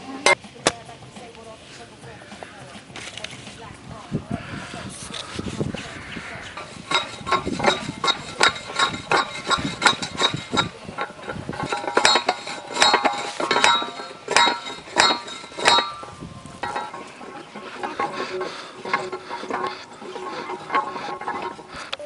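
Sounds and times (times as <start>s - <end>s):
post driver clanking on metal post: 6.5s - 22.0s.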